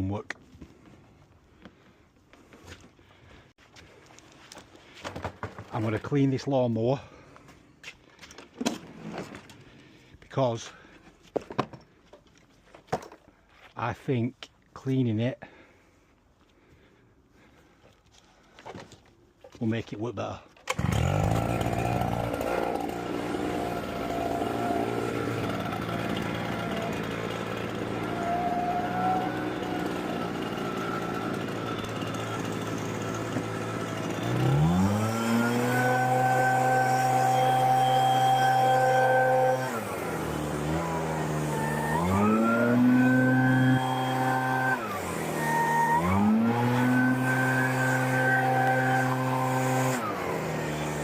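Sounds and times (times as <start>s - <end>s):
cleaning machine motor: 20.7s - 51.0s.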